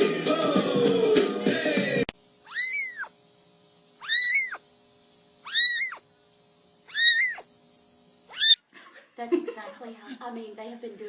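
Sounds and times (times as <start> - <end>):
cat meowing: 2.5 - 3.1, 4.0 - 4.6, 5.5 - 6.0, 6.9 - 7.4, 8.3 - 8.6.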